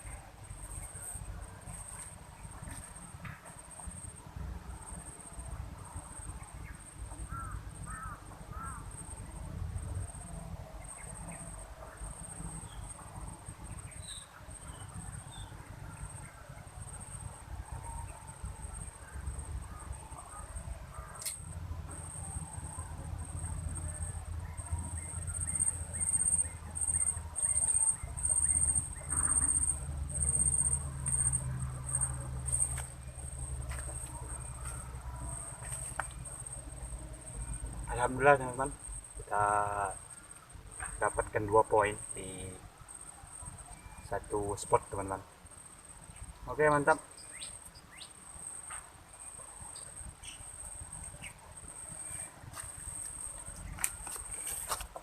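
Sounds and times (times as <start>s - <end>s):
faint bird chirps: 10.1s - 33.4s, 37.2s - 45.2s
sharp click: 21.2s - 21.4s.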